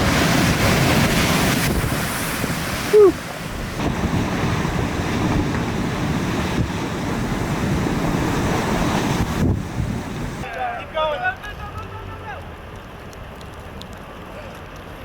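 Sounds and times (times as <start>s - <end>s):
strong wind on microphone: 0.0s - 10.4s
storm surf: 0.0s - 11.4s.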